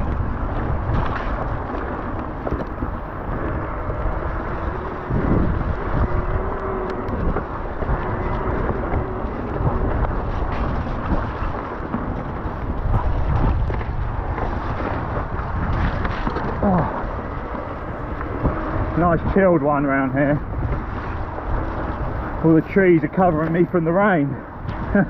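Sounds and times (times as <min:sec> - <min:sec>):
bike knocks and rattles: 0:00.0 - 0:23.8
tyre rumble on rough trail: 0:00.0 - 0:25.0
wind buffeting microphone: 0:00.0 - 0:25.0.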